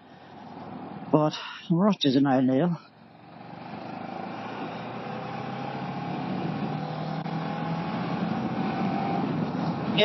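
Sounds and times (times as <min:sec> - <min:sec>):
wind rush over microphone: 0:06.2 - 0:10.0.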